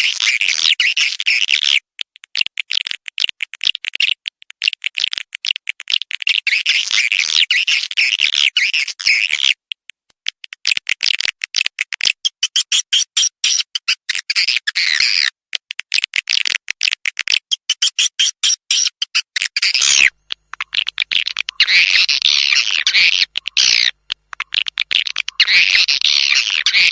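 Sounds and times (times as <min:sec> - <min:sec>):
swiftlets twittering: 0:19.8 - 0:26.9.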